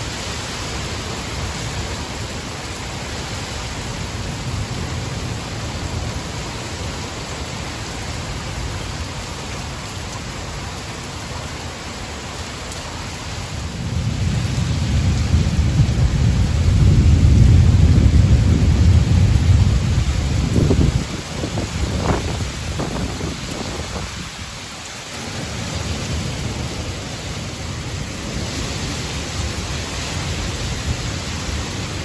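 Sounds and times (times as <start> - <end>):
steady rain: 0.0 - 32.0
thunder rolling rumble: 13.6 - 32.0.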